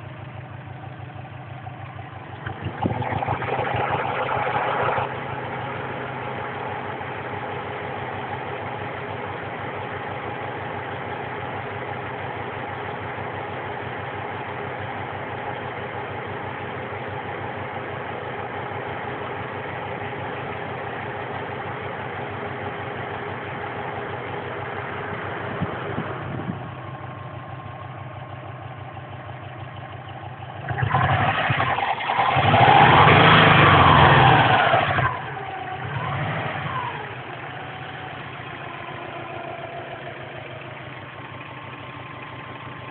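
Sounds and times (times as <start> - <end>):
car engine idling: 0.0 - 42.9
engine revving loudly: 2.4 - 5.9, 30.6 - 37.8.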